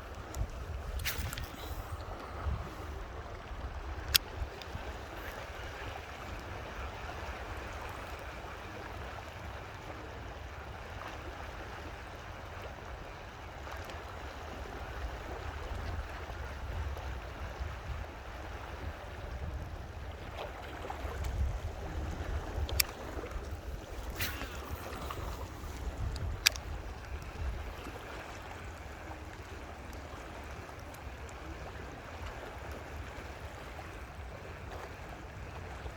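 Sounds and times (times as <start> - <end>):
wind rumbling on microphone: 0.0 - 6.6, 14.9 - 31.5
running water rushing: 20.0 - 35.9
sharp click: 26.2 - 26.7.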